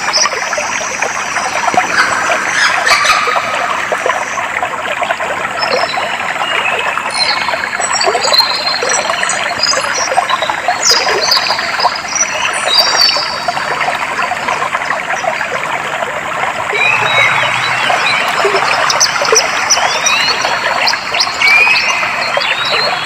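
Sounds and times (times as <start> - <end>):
water flowing and trickling: 0.0 - 23.0
birds chirping and whistling: 1.8 - 4.4, 16.7 - 23.0.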